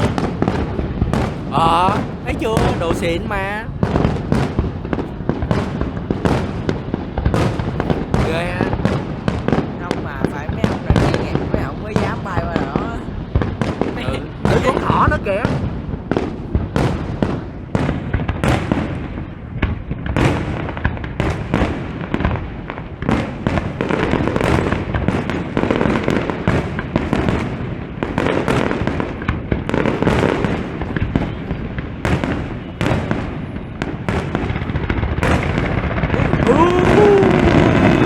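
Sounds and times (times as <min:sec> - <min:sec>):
sharp bangs: 0:00.0 - 0:15.8
fireworks bursting and crackling: 0:00.0 - 0:38.0.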